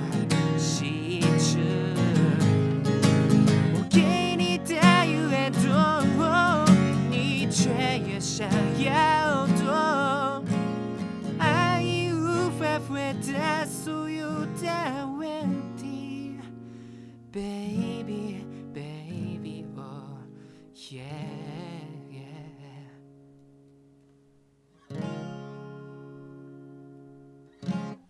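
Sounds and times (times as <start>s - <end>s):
wordless wavering vocal melody: 0.0s - 16.5s
acoustic guitar strumming: 0.0s - 28.0s.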